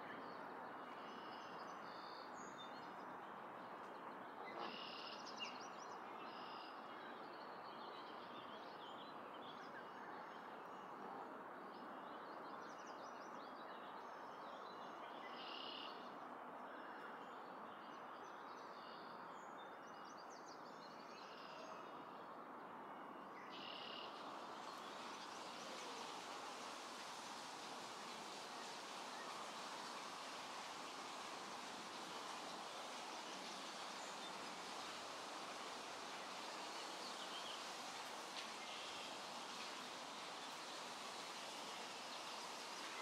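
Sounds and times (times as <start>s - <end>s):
background hiss: 0.0s - 43.0s
faint bird chirps: 23.0s - 24.2s.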